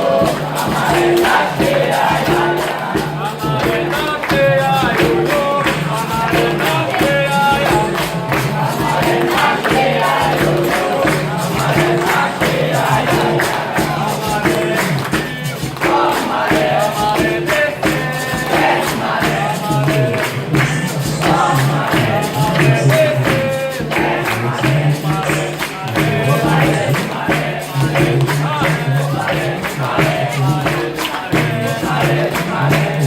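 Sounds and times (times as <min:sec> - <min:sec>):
group singing in chorus: 0:00.0 - 0:33.0
lead singer: 0:00.0 - 0:33.0
steady percussion beat: 0:00.0 - 0:33.0.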